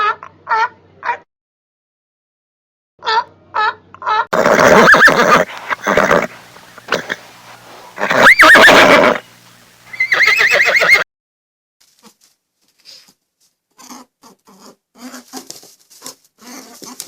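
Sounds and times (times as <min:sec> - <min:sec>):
horse whinnying: 0:04.3 - 0:11.0.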